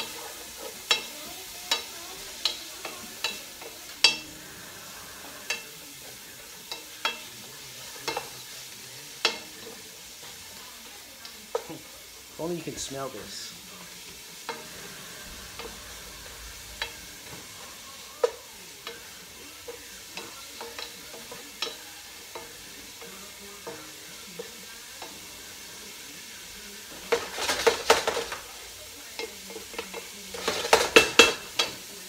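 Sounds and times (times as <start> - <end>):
onions sizzling in oil: 0.0 - 32.0
wooden spoon scraping a pot: 14.1 - 25.7.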